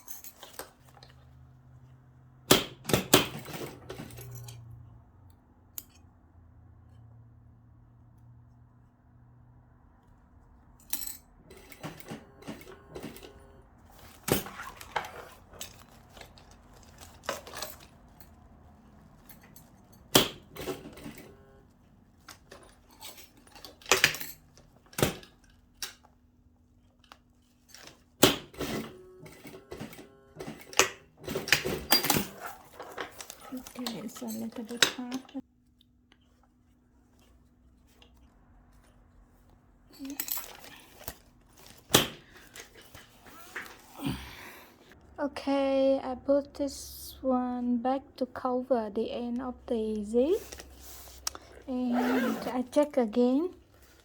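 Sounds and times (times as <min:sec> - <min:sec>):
zip parts clicking and clinking: 0:00.0 - 0:01.2, 0:02.5 - 0:04.7, 0:10.8 - 0:21.4, 0:22.2 - 0:26.1, 0:27.0 - 0:35.4, 0:39.9 - 0:44.0, 0:50.3 - 0:54.0
zip snapping: 0:51.2 - 0:52.8.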